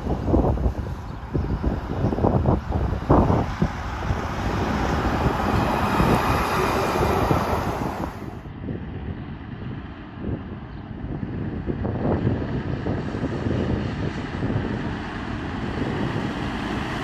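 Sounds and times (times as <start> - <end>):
wind buffeting microphone: 0.0 - 17.0
heavy truck driving past: 0.1 - 8.4.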